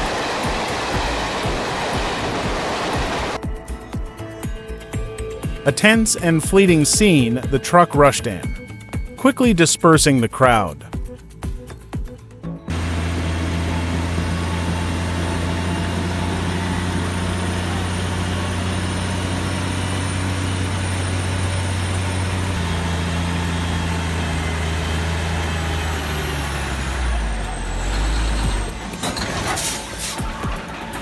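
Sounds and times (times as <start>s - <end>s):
heavy truck engine drone: 0.0s - 31.0s.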